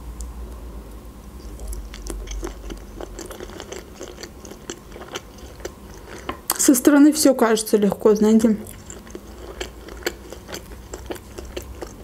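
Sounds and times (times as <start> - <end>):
chewing food: 1.4 - 6.7, 8.2 - 12.0.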